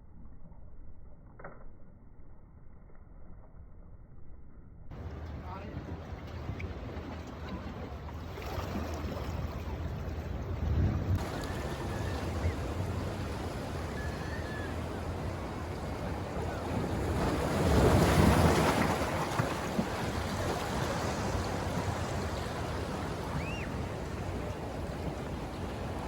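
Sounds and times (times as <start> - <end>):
ocean waves washing in: 4.9 - 26.0
wind on microphone: 8.6 - 26.0.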